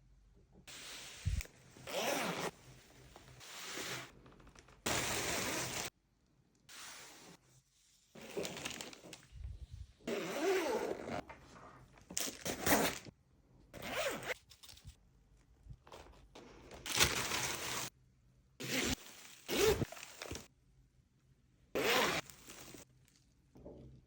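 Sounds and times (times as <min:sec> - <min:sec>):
bag zipper opening and closing: 0:01.8 - 0:02.6, 0:04.8 - 0:05.9, 0:10.0 - 0:11.2, 0:12.4 - 0:13.1, 0:13.8 - 0:14.4, 0:18.6 - 0:20.5, 0:21.8 - 0:22.8.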